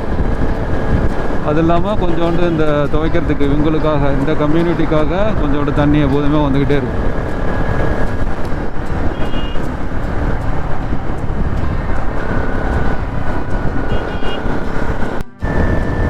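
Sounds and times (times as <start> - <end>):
motorcycle road noise: 0.0 - 16.0
wind rushing over microphone: 0.0 - 16.0
short electronic beeps: 9.0 - 9.7.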